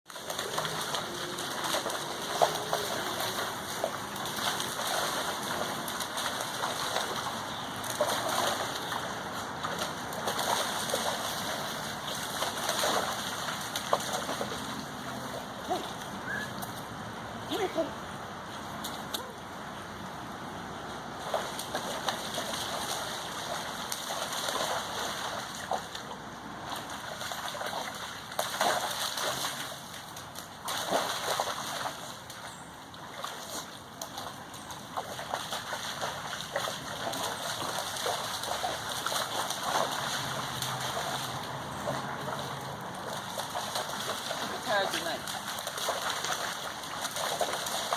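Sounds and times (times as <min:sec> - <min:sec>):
rain falling: 0:00.1 - 0:17.9, 0:35.9 - 0:47.9
water splashes: 0:00.1 - 0:47.9.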